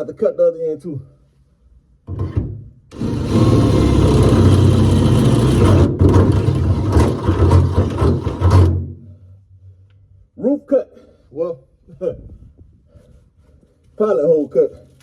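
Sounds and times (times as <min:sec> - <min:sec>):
power drill boring sheet metal: 0:02.9 - 0:08.8.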